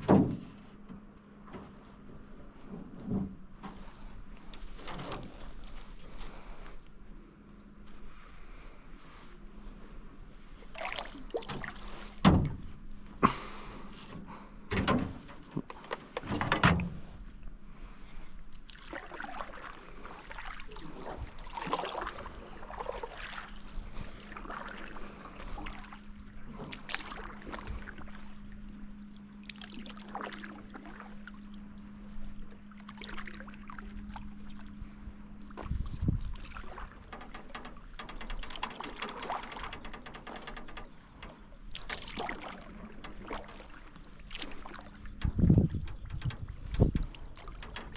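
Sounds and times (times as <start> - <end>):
steady low hum: 0.0 - 47.9
paddle swishing water: 8.0 - 14.2, 18.1 - 47.9.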